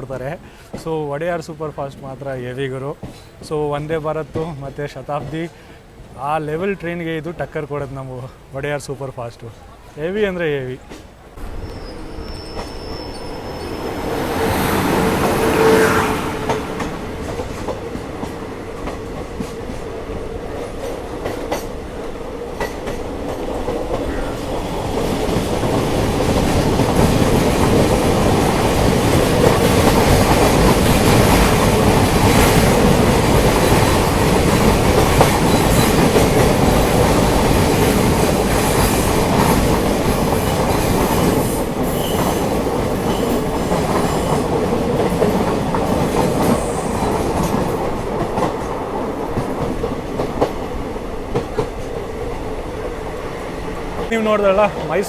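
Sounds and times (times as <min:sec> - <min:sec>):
clickety-clack of rail joints: 0:00.0 - 0:06.2, 0:10.8 - 0:55.0
train wheels rumbling on rails: 0:00.0 - 0:08.1, 0:10.4 - 0:55.0
wheel squeal: 0:11.4 - 0:16.6, 0:41.5 - 0:42.5.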